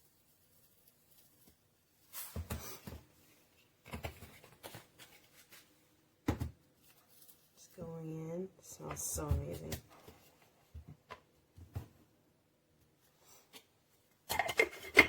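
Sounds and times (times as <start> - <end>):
spice grinder rattling and knocking: 14.3 - 15.0.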